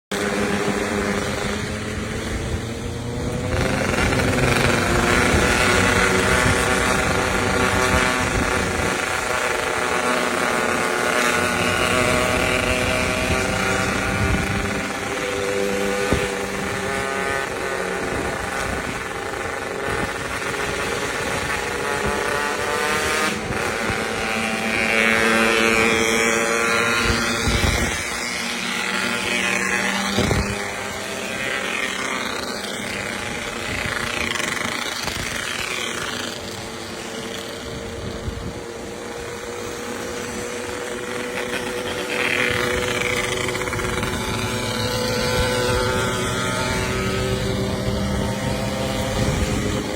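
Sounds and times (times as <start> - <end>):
two-stroke motorcycle engine revving: 0.0 - 49.9.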